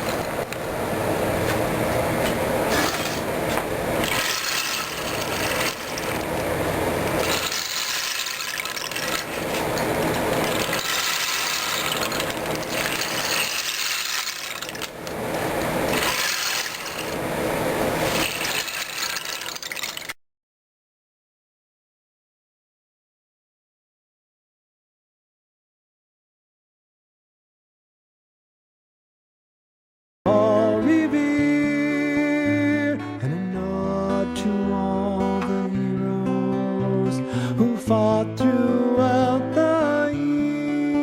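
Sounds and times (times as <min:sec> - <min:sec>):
rain stick rattling beans: 0:00.0 - 0:00.5, 0:02.7 - 0:20.2.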